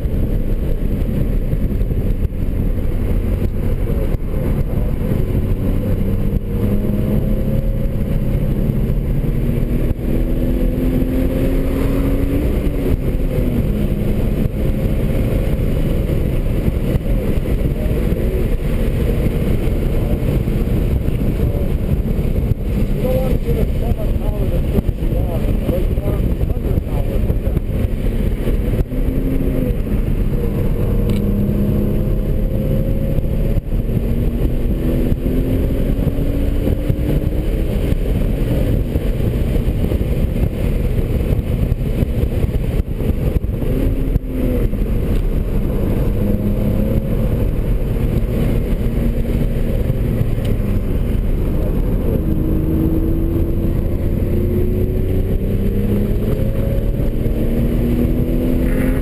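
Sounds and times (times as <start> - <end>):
car engine revving inside cabin: 0.0 - 59.0.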